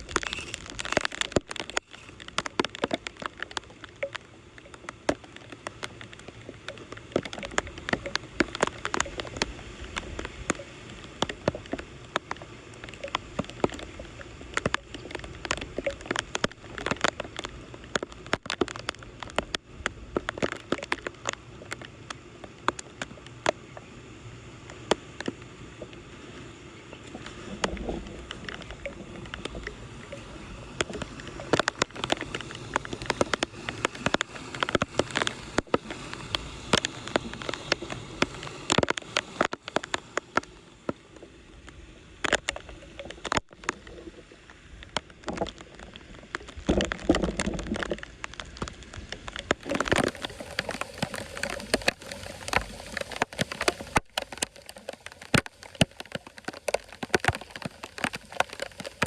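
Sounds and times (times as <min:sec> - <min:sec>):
floodwater running and gurgling: 0:00.0 - 0:59.0
sharp clicks and knocks: 0:30.8 - 0:41.0, 0:44.9 - 0:59.0
heavy water slosh: 0:45.1 - 0:59.0.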